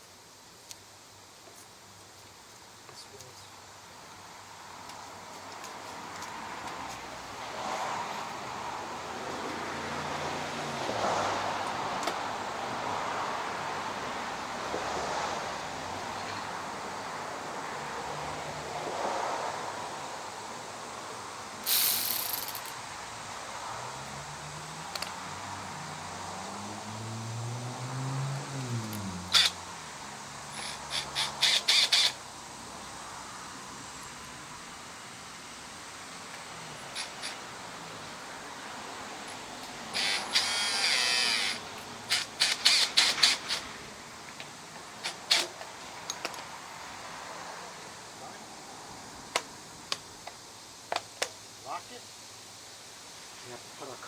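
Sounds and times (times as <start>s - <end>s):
passing motor vehicle hum: 4.4s - 50.2s
short loud hiss: 21.6s - 22.8s
power drill running: 40.0s - 41.6s.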